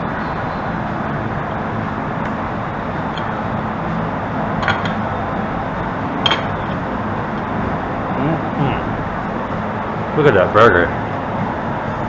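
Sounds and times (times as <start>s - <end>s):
street traffic: 0.0s - 12.0s
restaurant din: 1.2s - 12.0s
tableware clinking: 3.0s - 3.8s, 4.5s - 7.5s.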